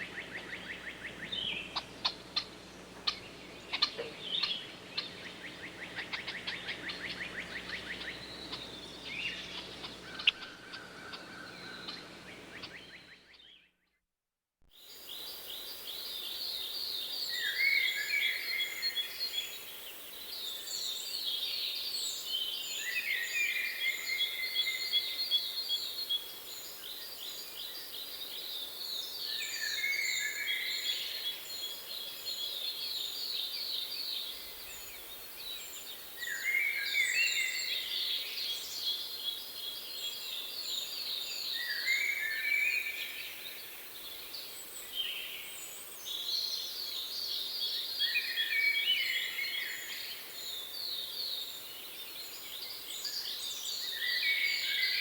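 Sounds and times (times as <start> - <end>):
steady hiss: 0.0 - 13.2
songbirds singing trills: 0.0 - 13.7, 15.0 - 55.0.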